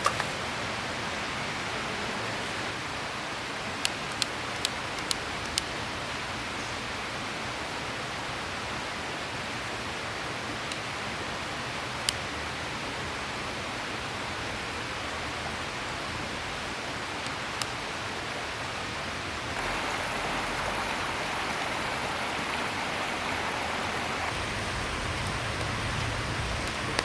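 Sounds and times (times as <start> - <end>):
river water rushing: 12.6 - 27.0.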